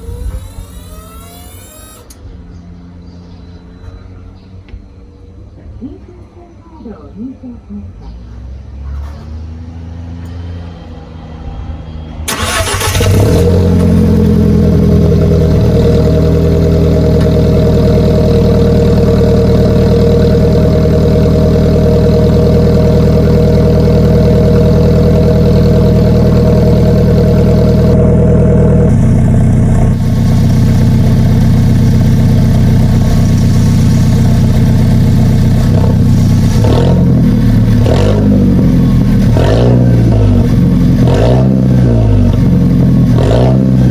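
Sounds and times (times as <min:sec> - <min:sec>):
car engine starting and idling: 0:12.2 - 0:43.9.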